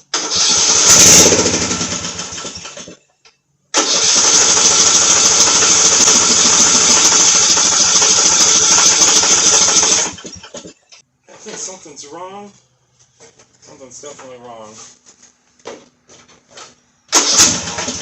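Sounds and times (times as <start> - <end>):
riding mower starter cranking: 0.0 - 3.0, 3.8 - 10.7, 17.1 - 18.0.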